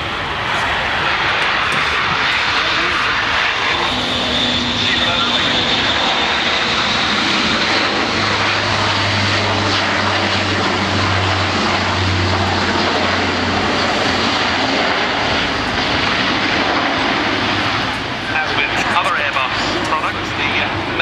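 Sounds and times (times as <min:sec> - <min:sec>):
deep low drone: 0:00.0 - 0:21.0
propeller aircraft flying past: 0:00.0 - 0:21.0.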